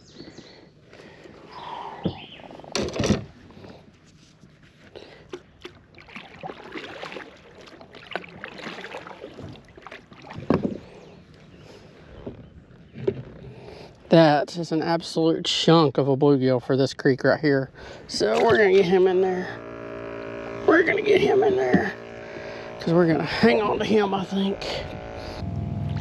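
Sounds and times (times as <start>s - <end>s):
water splashing and sloshing: 1.0s - 14.1s, 18.1s - 19.1s.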